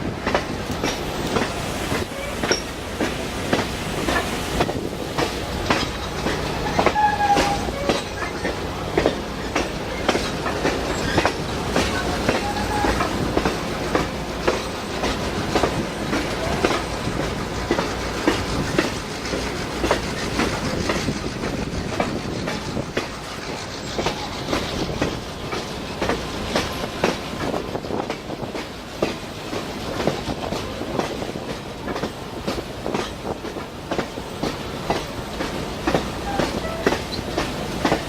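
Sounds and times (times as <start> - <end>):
train rumbling on track: 0.0 - 38.0
wheels clicking over rail joints: 0.1 - 38.0.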